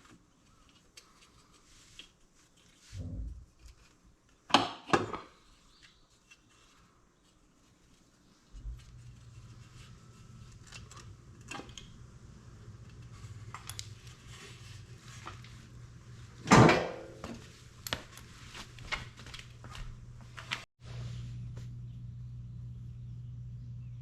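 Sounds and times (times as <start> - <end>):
steady low hum: 8.2 - 24.0.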